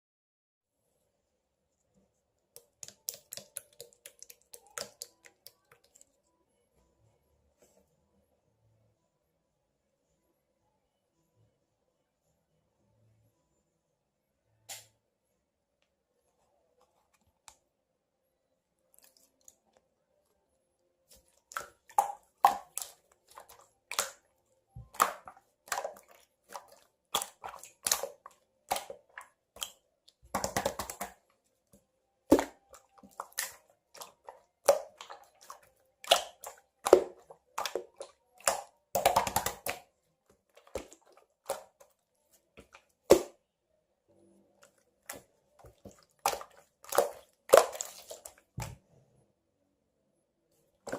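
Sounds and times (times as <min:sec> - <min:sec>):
slime squelching and popping: 0:02.6 - 0:06.1, 0:21.1 - 0:31.3, 0:32.3 - 0:42.0, 0:42.6 - 0:43.4, 0:44.6 - 0:48.8
slime crackling: 0:21.1 - 0:31.2, 0:32.3 - 0:39.9, 0:45.1 - 0:48.6.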